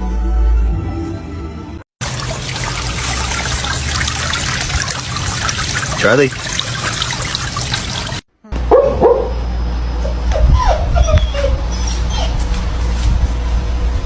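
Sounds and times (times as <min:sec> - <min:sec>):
dog yipping and whining: 0:10.3 - 0:12.5.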